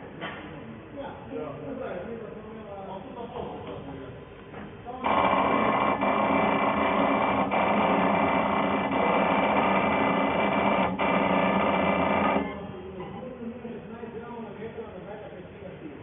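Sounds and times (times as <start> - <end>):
machine mechanical whine: 5.0 - 13.2.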